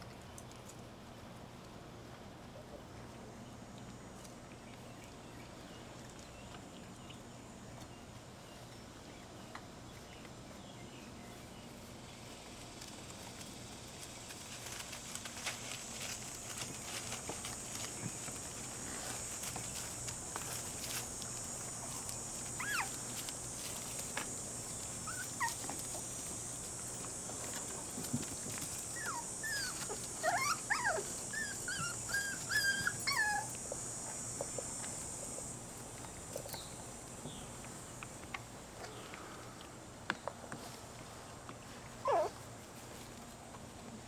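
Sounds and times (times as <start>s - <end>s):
steady high hiss: 0.0s - 44.0s
puppies whimpering: 22.4s - 23.3s, 24.8s - 26.1s, 28.8s - 33.6s, 42.0s - 42.3s
high puppy whines: 22.6s - 23.0s, 25.0s - 25.8s, 28.9s - 33.6s, 42.0s - 42.4s.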